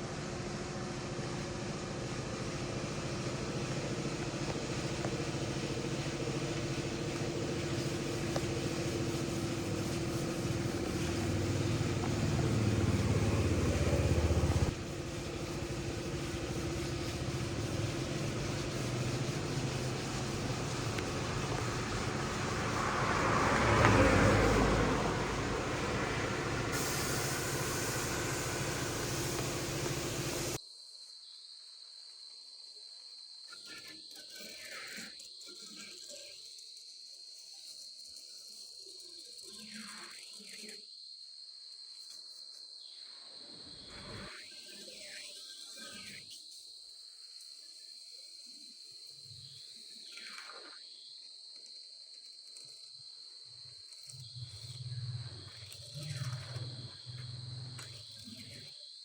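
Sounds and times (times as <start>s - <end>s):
mechanical drone with low hum: 0.0s - 22.5s.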